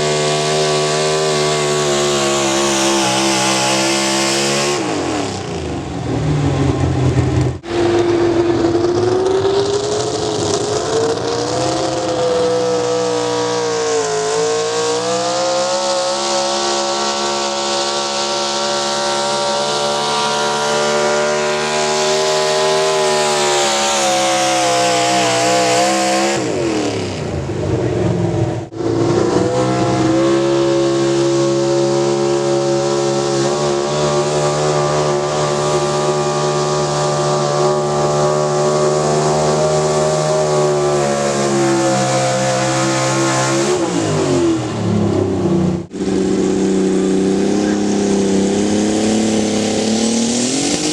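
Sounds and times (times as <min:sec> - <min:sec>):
engine running at high revs: 0:00.0 - 0:50.9.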